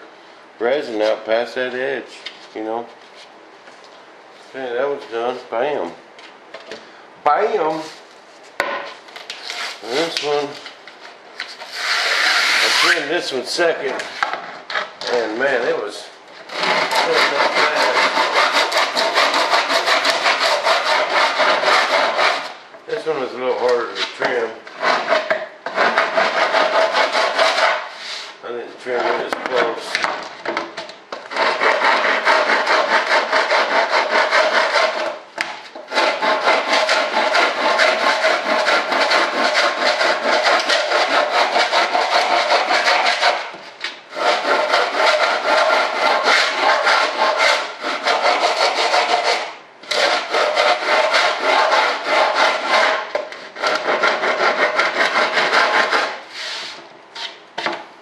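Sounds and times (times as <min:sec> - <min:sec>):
sandpaper rubbing fiberglass: 0:09.4 - 0:10.5, 0:11.6 - 0:13.4, 0:16.5 - 0:22.6, 0:23.9 - 0:30.0, 0:31.2 - 0:57.4.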